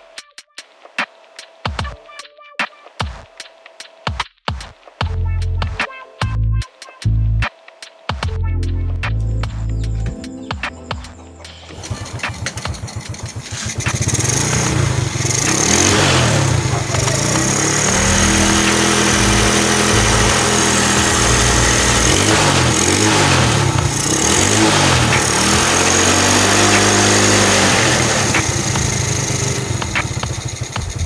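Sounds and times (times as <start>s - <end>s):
motorcycle engine revving: 11.7s - 31.0s.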